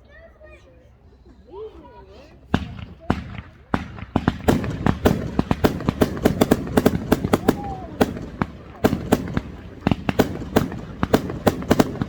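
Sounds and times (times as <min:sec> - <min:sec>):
fireworks cracking and banging: 0:02.5 - 0:12.0.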